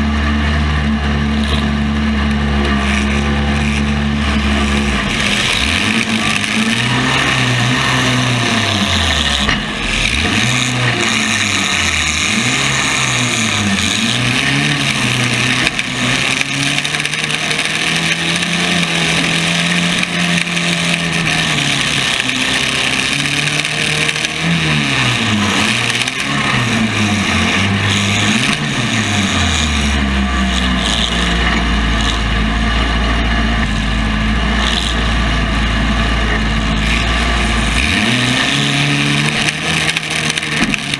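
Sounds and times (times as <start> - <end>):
car engines revving: 0.0 - 40.9
low engine drone: 0.0 - 40.9
steady noisy din: 0.0 - 40.9.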